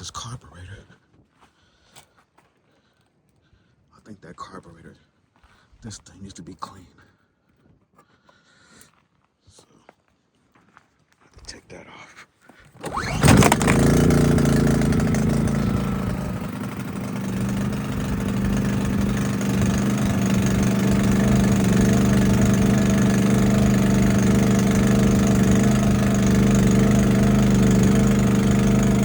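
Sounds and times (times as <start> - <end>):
generator engine running: 12.8 - 29.0.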